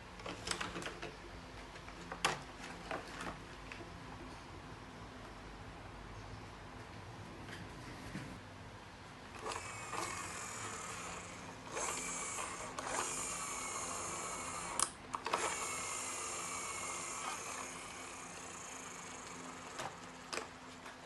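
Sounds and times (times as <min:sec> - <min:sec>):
small electric motor whirring: 0:09.4 - 0:20.5.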